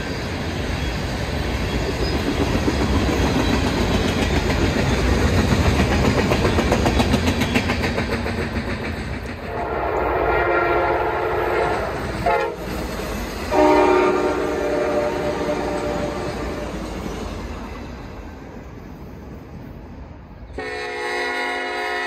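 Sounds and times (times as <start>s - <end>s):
freight train rumble and wheel clatter: 0.0s - 22.0s
locomotive air horn: 9.5s - 12.8s, 13.5s - 16.8s, 20.6s - 22.0s.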